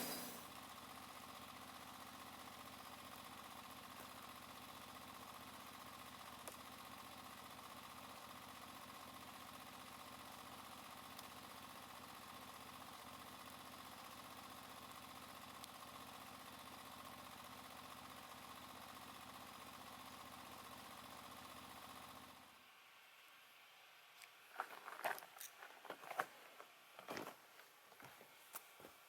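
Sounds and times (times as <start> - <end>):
faint engine humming: 0.0 - 1.6.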